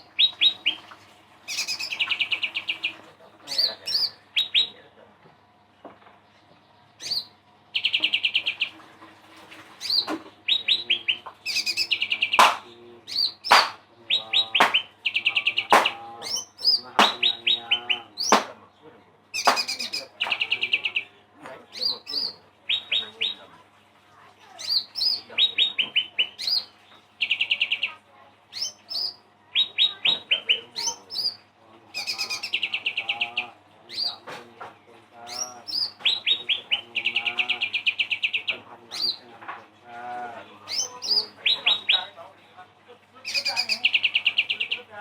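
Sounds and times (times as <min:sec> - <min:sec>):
songbird singing trills and whistles: 0:01.5 - 0:02.9, 0:03.5 - 0:04.8, 0:06.7 - 0:08.7, 0:09.8 - 0:18.5, 0:19.3 - 0:21.1, 0:21.7 - 0:23.4, 0:24.6 - 0:34.2, 0:35.2 - 0:39.2, 0:40.6 - 0:42.2, 0:43.2 - 0:44.9.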